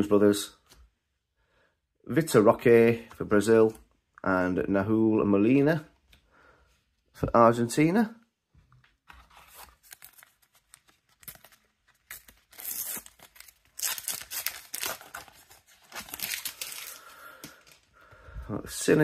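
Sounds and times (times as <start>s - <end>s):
wrapper crinkling: 9.4s - 17.9s
sticker packet tearing: 9.5s - 17.8s.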